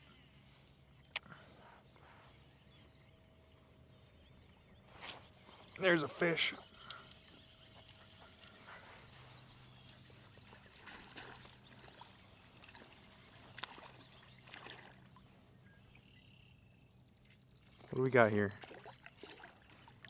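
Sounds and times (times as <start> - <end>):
faint water trickling: 0.6 - 20.0.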